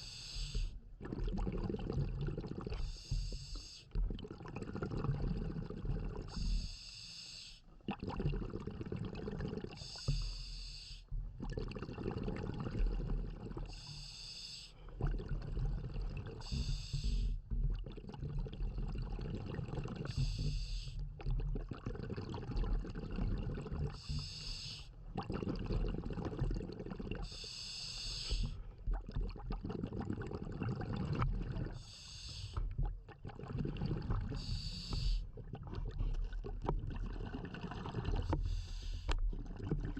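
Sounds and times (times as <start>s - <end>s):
regulator inhalation hiss: 0.0s - 0.7s, 2.9s - 3.8s, 6.4s - 7.6s, 9.8s - 11.0s, 13.7s - 14.8s, 16.4s - 17.3s, 20.1s - 21.0s, 24.0s - 24.9s, 27.3s - 28.5s, 31.8s - 32.6s, 34.4s - 35.2s
exhaled bubbles rumbling: 0.0s - 6.7s, 7.8s - 10.3s, 11.1s - 14.0s, 14.8s - 27.4s, 28.2s - 39.9s.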